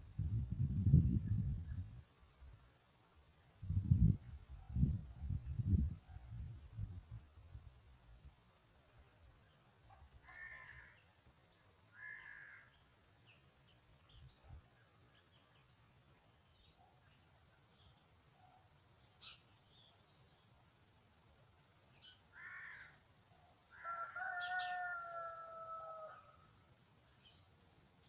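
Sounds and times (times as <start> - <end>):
long drawn-out bird call: 10.2 - 11.1, 11.9 - 12.8, 22.1 - 26.6.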